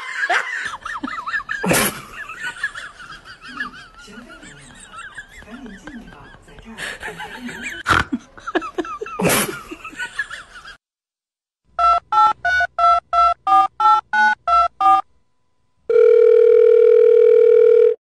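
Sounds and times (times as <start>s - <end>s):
long steady dial tone: 15.9s - 18.0s.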